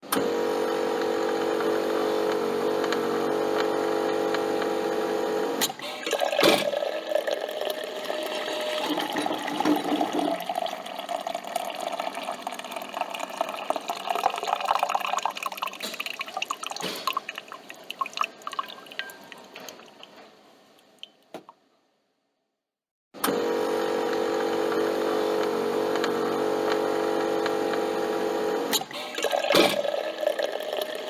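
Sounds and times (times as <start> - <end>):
coffee dripping into a cup: 6.1 - 20.2.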